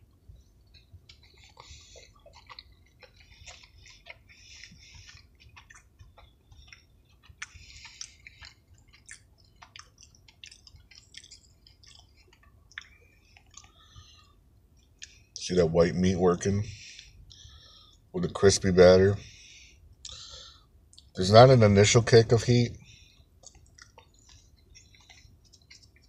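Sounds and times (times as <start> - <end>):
crunchy chewing: 0.0 - 18.4, 19.2 - 21.5, 22.8 - 26.0
wet mouth clicks: 0.7 - 14.1, 23.4 - 26.0.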